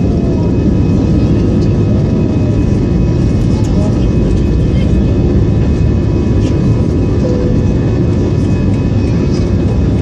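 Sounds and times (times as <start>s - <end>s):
jet engine cabin rumble: 0.0s - 10.0s
faint high whine: 7.1s - 9.3s.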